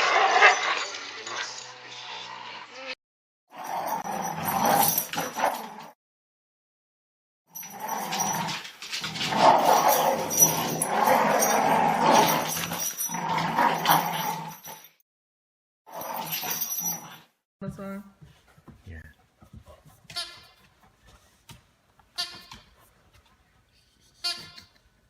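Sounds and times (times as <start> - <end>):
dog growling and whining: 3.6 - 5.9, 7.6 - 14.9.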